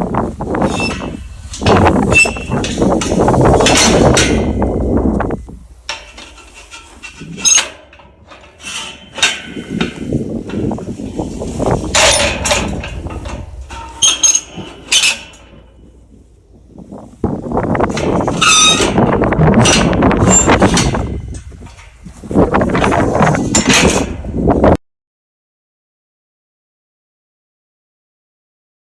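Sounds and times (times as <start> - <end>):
gate squeal: 0.0 - 16.0, 17.8 - 21.4
metal gate clanking: 0.0 - 24.4
gate scraping: 0.0 - 24.8.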